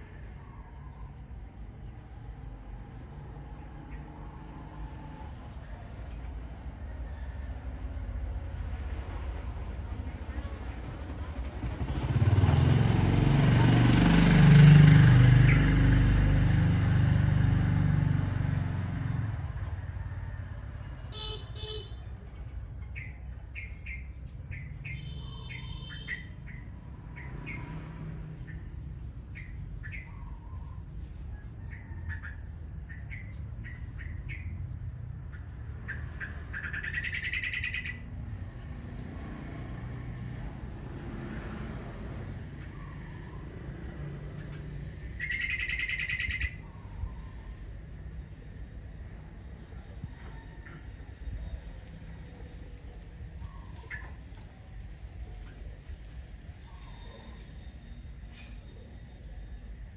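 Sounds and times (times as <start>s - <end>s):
birds chirping and calling: 22.8s - 27.7s, 28.4s - 38.7s, 42.2s - 59.6s.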